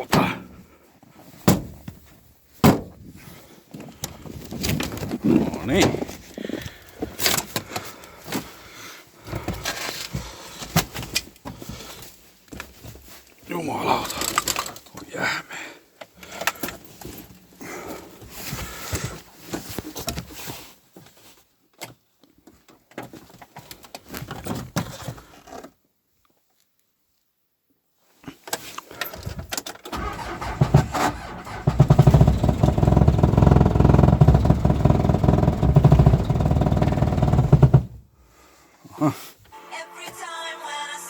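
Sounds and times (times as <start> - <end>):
clicks and rattles in car cab: 1.4 - 6.3, 7.1 - 7.9, 21.7 - 25.7, 28.5 - 38.0
diesel engine cranking: 29.9 - 38.0.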